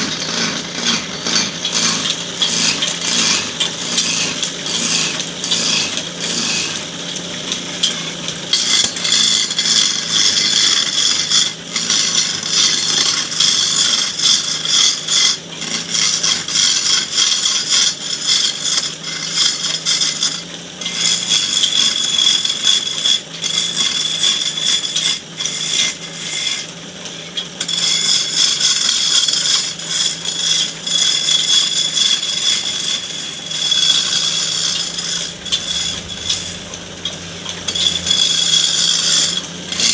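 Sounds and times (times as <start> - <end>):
hand tool scraping wood: 0.0 - 6.9, 27.6 - 39.9
steady low hum: 33.2 - 39.9.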